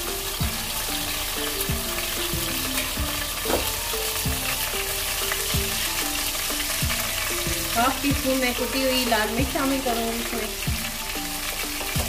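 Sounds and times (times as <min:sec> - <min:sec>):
onions sizzling in oil: 0:00.0 - 0:12.0
soft music: 0:00.0 - 0:12.0.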